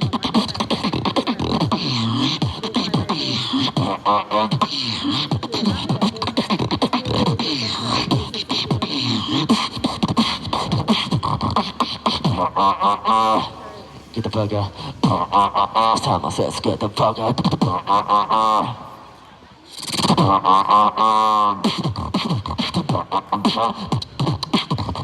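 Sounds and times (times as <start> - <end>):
buzzing pitched vocal tone: 0.0 - 13.6, 14.2 - 18.9, 19.7 - 25.0
swooping vocal bass tones: 0.0 - 19.0, 19.8 - 25.0
beatboxing: 0.0 - 19.1, 19.7 - 25.0.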